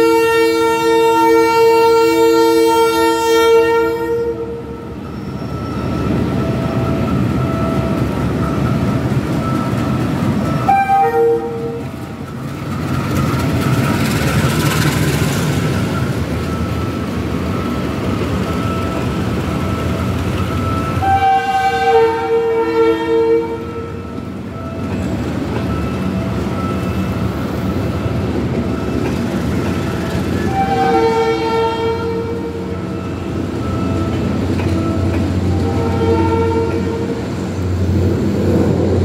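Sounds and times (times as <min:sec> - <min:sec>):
train horn: 0:00.0 - 0:04.8, 0:10.6 - 0:11.9, 0:21.0 - 0:24.2, 0:30.4 - 0:32.8, 0:35.5 - 0:37.2
diesel locomotive engine rumble: 0:00.0 - 0:39.0
wheels clattering over rails: 0:11.7 - 0:19.6.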